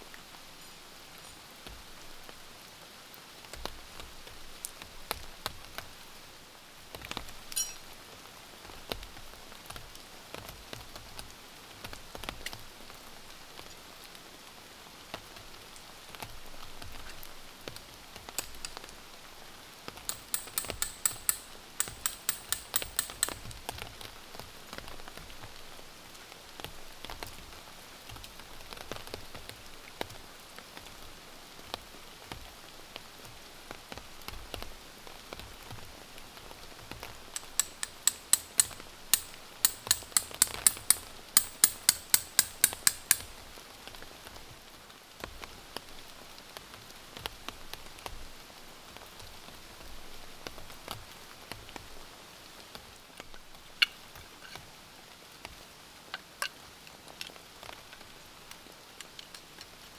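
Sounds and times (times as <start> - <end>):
quick sharp clicks: 37.4 - 43.4.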